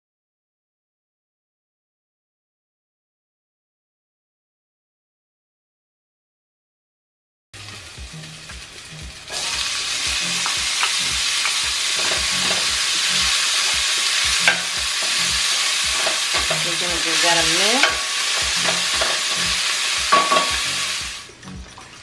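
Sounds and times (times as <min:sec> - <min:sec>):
onion and garlic sizzling in oil: 0:07.6 - 0:21.6
wooden spoon scraping a pan: 0:14.4 - 0:20.6.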